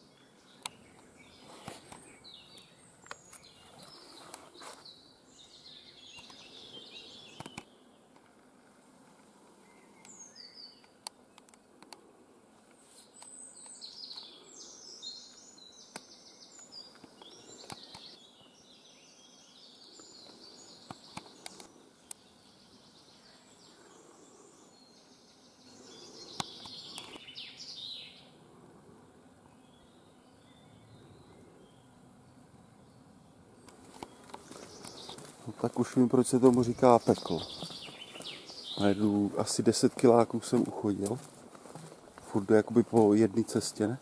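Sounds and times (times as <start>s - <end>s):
faint woodland birdsong: 0.0s - 44.0s
sharp clicks: 7.4s - 7.7s.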